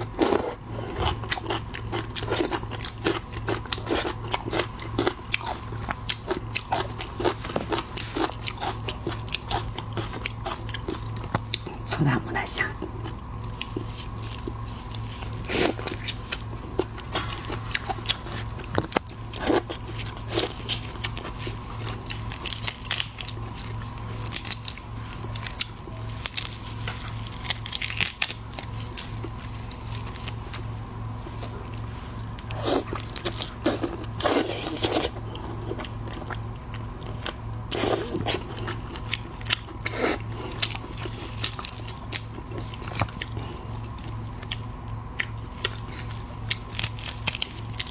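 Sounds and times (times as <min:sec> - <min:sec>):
crunching and chewing shrimp: 0:00.0 - 0:47.9
steady low hum: 0:00.0 - 0:47.9.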